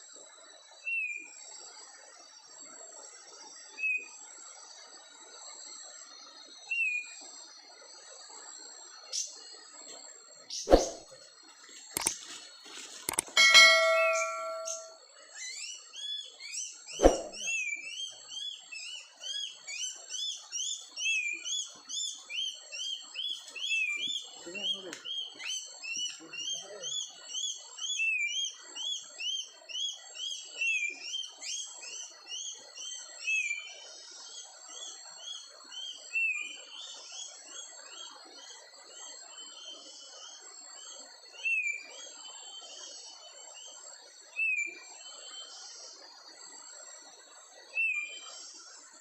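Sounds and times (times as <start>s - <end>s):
birds chirping: 13.1s - 15.0s.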